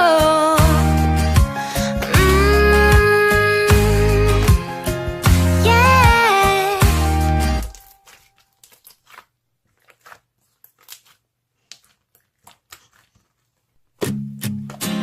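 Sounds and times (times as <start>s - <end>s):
strummed acoustic guitar song: 0.0s - 7.8s, 14.0s - 15.0s
sticky slime clicks and crackles: 7.7s - 13.2s.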